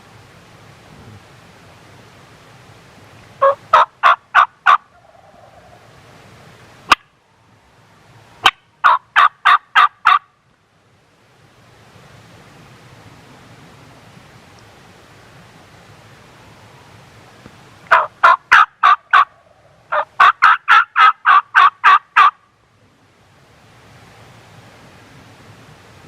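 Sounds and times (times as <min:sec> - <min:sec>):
turkey calling: 0:03.4 - 0:05.9, 0:08.4 - 0:10.3, 0:17.9 - 0:22.4.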